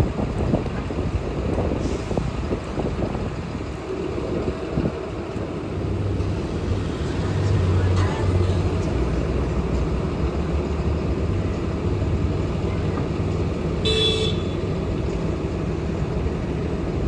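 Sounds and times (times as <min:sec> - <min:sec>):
road traffic rumbling: 0:00.0 - 0:17.0
vehicle horn toot: 0:13.8 - 0:14.7.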